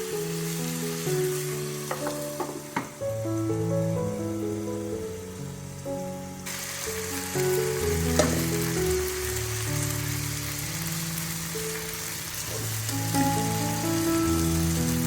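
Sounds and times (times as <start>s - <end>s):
background music of held notes: 0.0s - 15.0s
food sizzling in oil: 0.0s - 15.0s.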